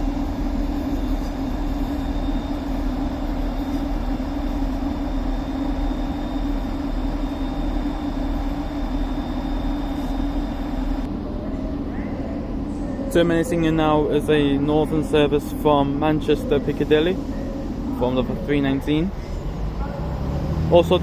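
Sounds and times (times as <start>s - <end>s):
faint high whine: 0.0s - 11.8s
electric train humming: 0.0s - 21.0s.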